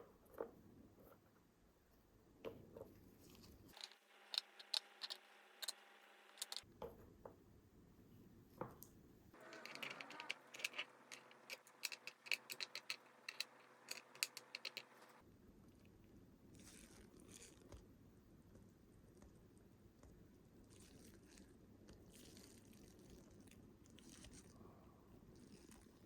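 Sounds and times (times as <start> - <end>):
small sharp clicks and scrapes: 3.2 - 6.7, 9.4 - 15.2, 16.5 - 17.9, 20.0 - 24.6.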